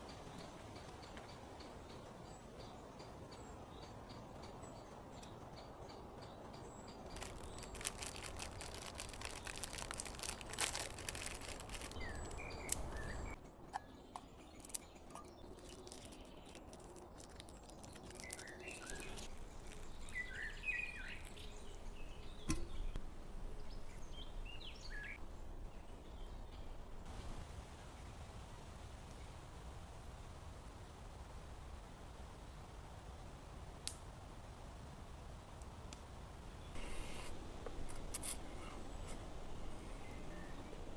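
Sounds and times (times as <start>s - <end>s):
small birds chirping: 0.2s - 23.0s
clicks and crackles: 7.0s - 21.6s.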